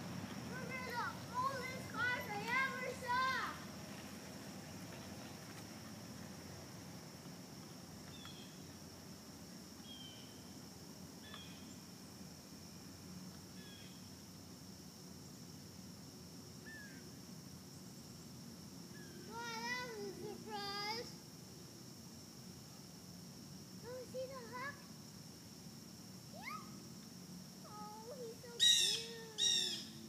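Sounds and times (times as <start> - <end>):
faint bird chirps: 9.8 - 10.6, 11.2 - 11.8, 13.6 - 14.2, 27.7 - 30.0.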